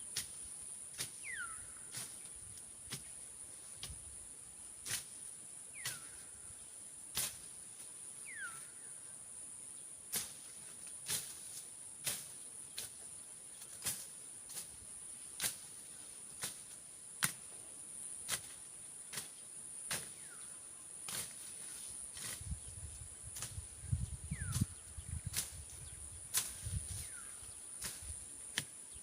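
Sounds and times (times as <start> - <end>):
insects droning: 0.0 - 29.0
vegetation rustling: 10.1 - 17.6, 18.2 - 29.0.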